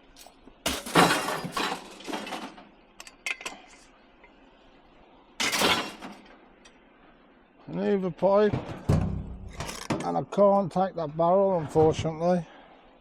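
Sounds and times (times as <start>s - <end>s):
metal clothes horse clattering: 8.5s - 10.2s.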